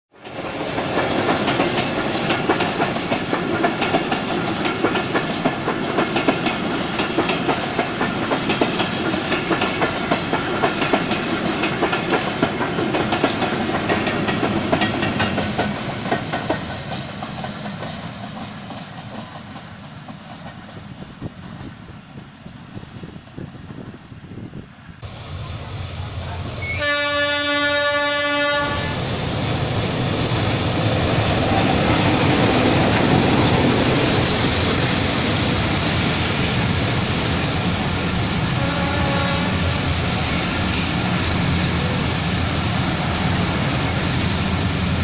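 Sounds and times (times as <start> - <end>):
train wheels clacking on rail joints: 0.2 - 22.0.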